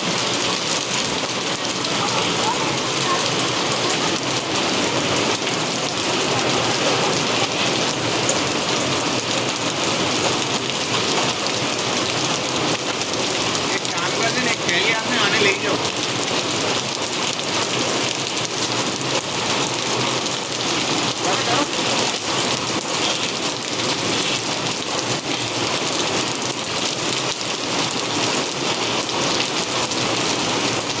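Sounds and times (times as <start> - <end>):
heavy rain on hard surfaces: 0.0 - 31.0.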